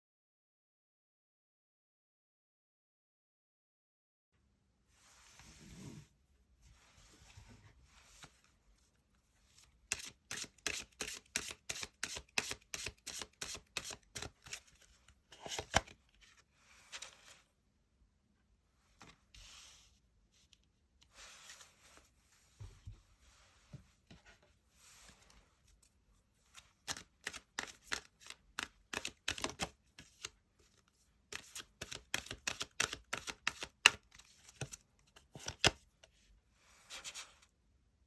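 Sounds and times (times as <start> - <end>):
cards sliding swishes: 26.5 - 30.3
rapid card flicks and taps: 31.4 - 34.0.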